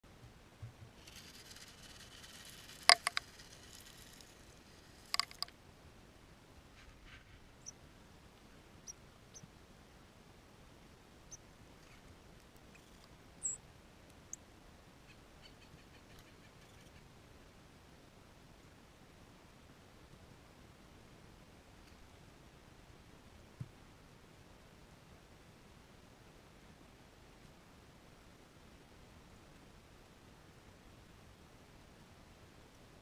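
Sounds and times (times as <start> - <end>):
small birds chipping and squeaking: 0.9 - 5.5, 8.8 - 9.5, 11.3 - 13.6, 15.0 - 17.1
sharp clicks: 1.1 - 4.4, 5.0 - 5.5.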